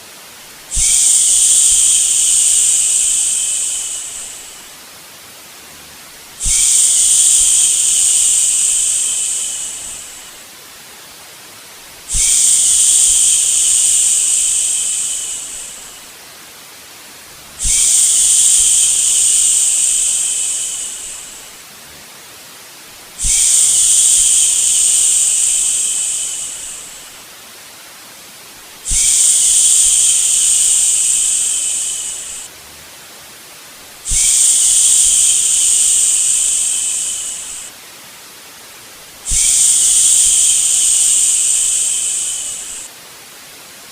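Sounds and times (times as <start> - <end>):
faint steady hiss: 0.0 - 43.9
person shushing: 17.6 - 21.6, 28.9 - 32.5, 34.1 - 37.7, 39.3 - 42.9.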